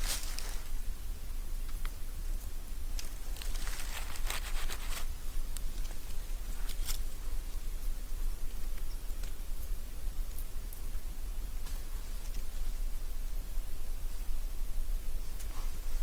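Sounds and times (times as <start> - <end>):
rustling and crackling: 0.0 - 0.8, 2.9 - 7.1.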